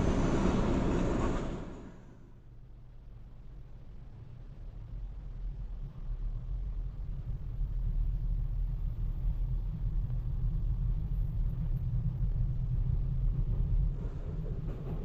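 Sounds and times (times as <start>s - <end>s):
freight train rumbling past: 0.0s - 2.5s.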